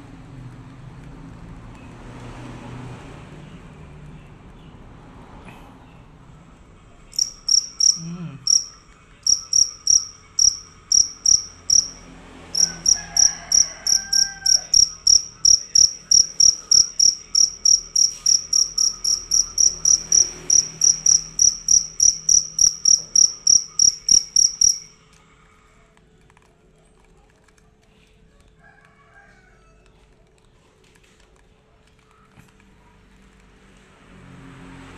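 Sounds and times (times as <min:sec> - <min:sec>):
field cricket chirping: 0:07.1 - 0:24.9.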